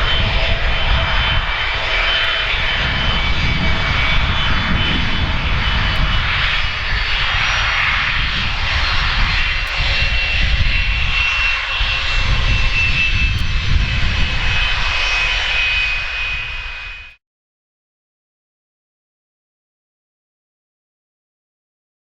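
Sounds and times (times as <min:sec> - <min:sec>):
aircraft engines running: 0:00.0 - 0:17.2.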